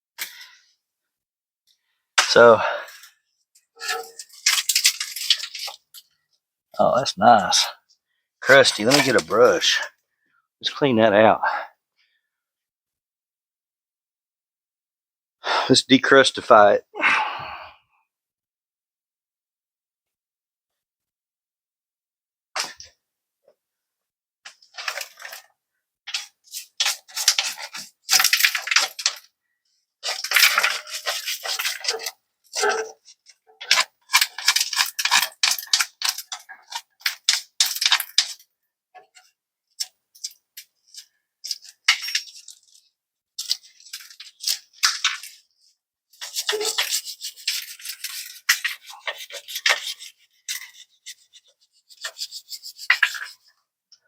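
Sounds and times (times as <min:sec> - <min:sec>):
brush scrubbing rust off metal: 0:03.8 - 0:05.8, 0:26.1 - 0:29.3, 0:30.0 - 0:38.4, 0:39.8 - 0:53.5.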